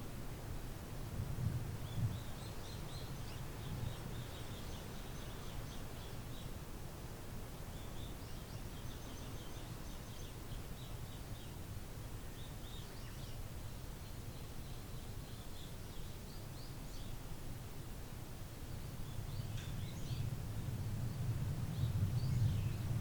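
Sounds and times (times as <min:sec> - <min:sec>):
strong wind rumble: 0:19.8 - 0:23.0.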